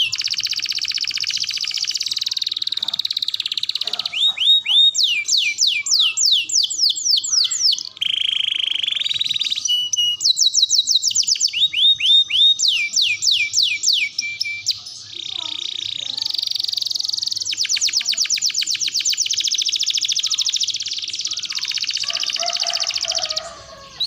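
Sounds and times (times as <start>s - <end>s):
canary singing: 0.0s - 24.0s.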